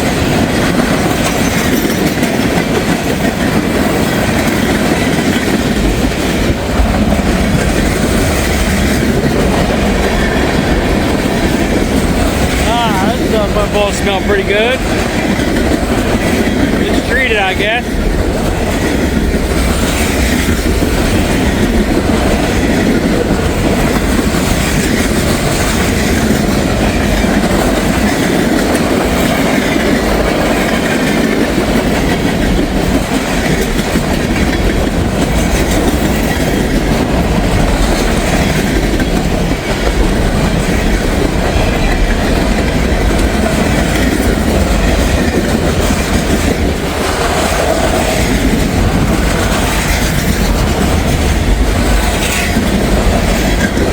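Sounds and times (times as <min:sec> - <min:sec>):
freight train rumbling: 0:00.0 - 0:53.9
wheels clacking over rail joints: 0:00.0 - 0:53.9
wheels squealing on rail: 0:01.0 - 0:05.7.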